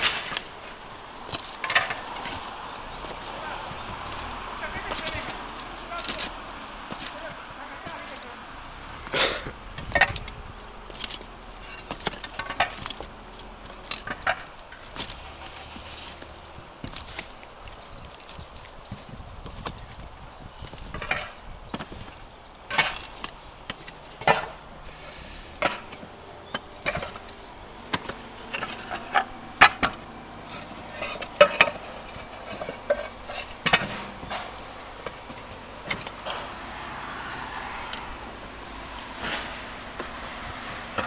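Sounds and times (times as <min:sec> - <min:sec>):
roof tiles and tools knocking: 0:00.0 - 0:08.2, 0:09.1 - 0:18.2, 0:20.7 - 0:24.7, 0:25.5 - 0:30.0, 0:30.6 - 0:36.7.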